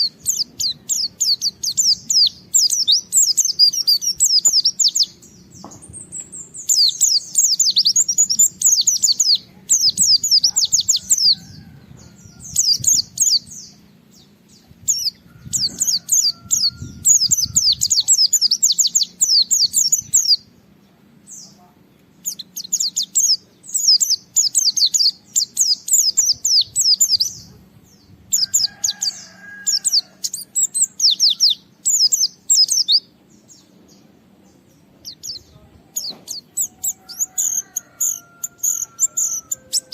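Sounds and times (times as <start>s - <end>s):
white-eye bird chirping: 0.0s - 11.5s, 22.2s - 27.6s, 28.4s - 33.7s, 34.6s - 39.9s.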